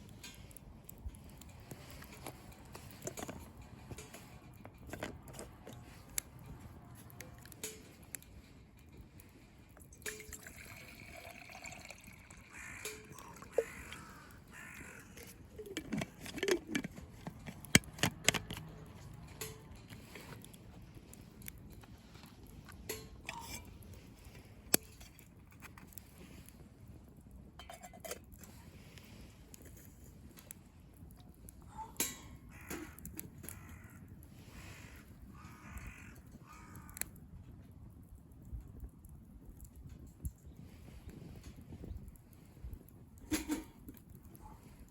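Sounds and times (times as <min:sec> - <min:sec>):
campfire crackling: 0:00.0 - 0:44.9
bird calls: 0:12.4 - 0:15.8.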